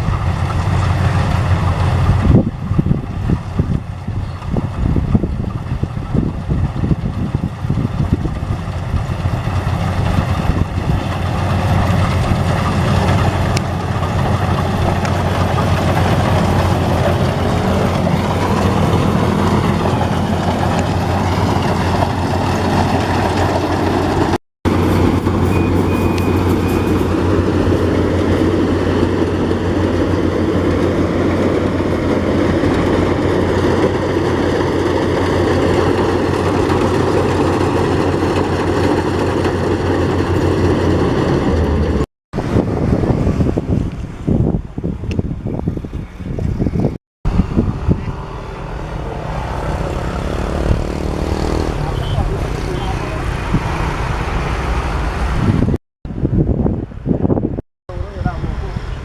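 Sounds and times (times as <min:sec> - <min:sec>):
combine harvester droning: 0:00.0 - 0:56.3.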